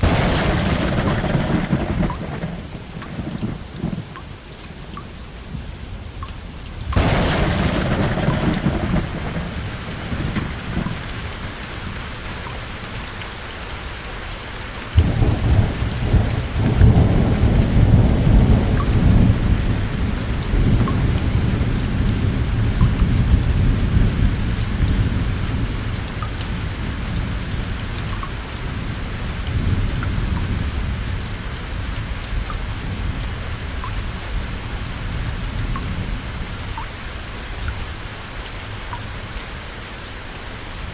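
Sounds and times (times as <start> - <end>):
rolling thunder: 0.0 - 4.1, 6.9 - 11.4, 15.0 - 27.8
heavy rain: 0.0 - 40.9.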